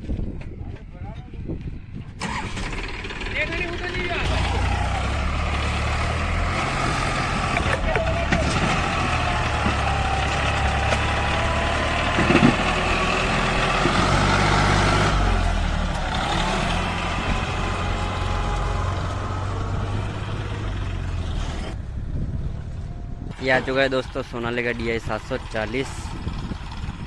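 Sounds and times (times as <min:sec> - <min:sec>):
tractor engine running: 0:02.2 - 0:27.0
engine knock: 0:24.8 - 0:27.0.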